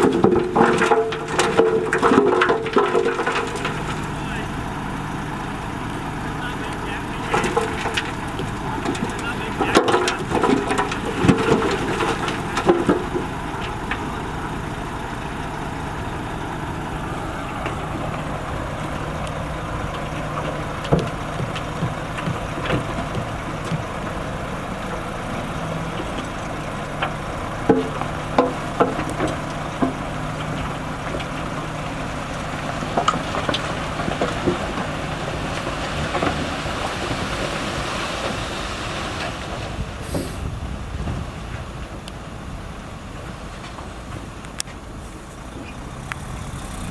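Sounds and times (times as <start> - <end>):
diesel engine running: 0.0 - 46.9
sharp clicks and knocks: 7.2 - 14.1, 17.6 - 24.4, 26.0 - 31.6.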